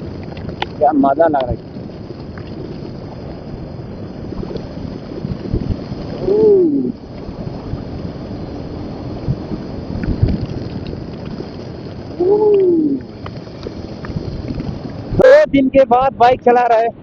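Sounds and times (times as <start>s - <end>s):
motorcycle running: 0.0s - 15.5s
wind buffeting microphone: 0.0s - 17.0s
rider's drawn-out exclamation: 12.2s - 13.1s.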